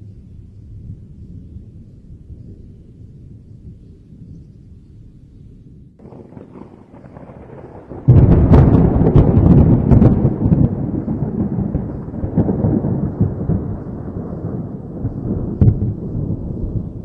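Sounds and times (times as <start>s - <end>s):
rolling thunder rumble: 0.0s - 17.0s
thunder crack: 6.0s - 17.0s.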